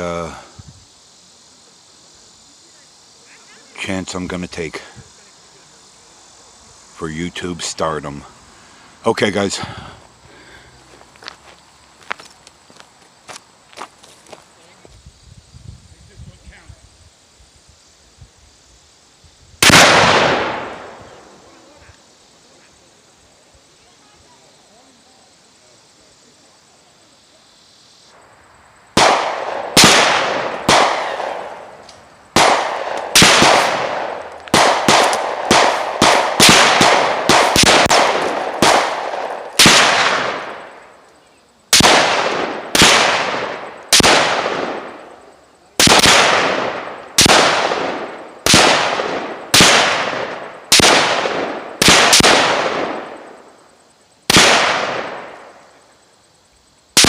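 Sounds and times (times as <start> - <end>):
echoing rifle shots: 19.6 - 21.0, 29.0 - 31.8, 32.4 - 40.8, 41.7 - 45.0, 45.8 - 53.4, 54.3 - 55.4.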